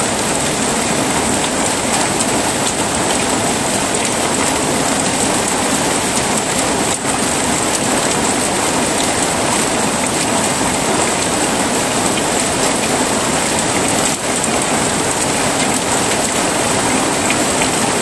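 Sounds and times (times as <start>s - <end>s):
heavy rain falling: 0.0s - 18.0s.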